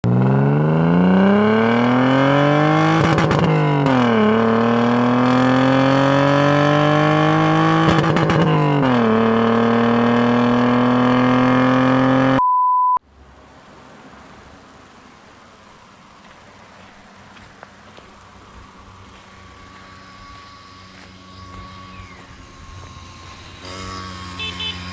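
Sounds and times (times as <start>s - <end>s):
car engine revving: 0.0s - 12.4s, 18.9s - 24.9s
short high beep: 12.3s - 13.0s.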